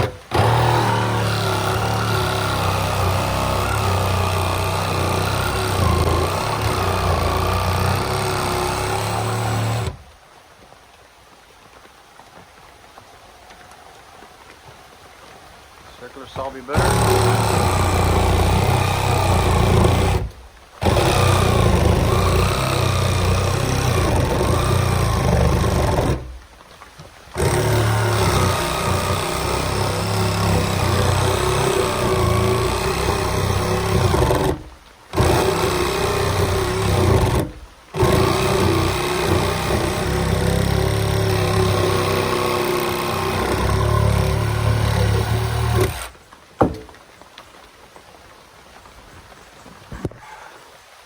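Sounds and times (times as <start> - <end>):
reciprocating saw cutting roofing: 0.0 - 10.0, 16.0 - 26.5, 27.3 - 46.9.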